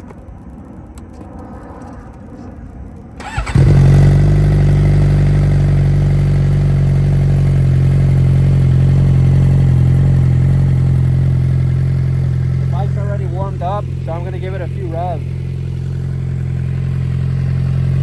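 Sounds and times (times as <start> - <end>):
motorcycle starter cranking: 3.2 - 4.9
motorcycle engine idling: 3.2 - 18.0.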